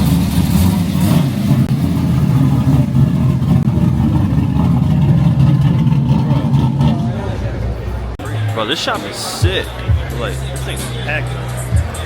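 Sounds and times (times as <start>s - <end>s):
car engine with deep exhaust drone: 0.0s - 8.2s.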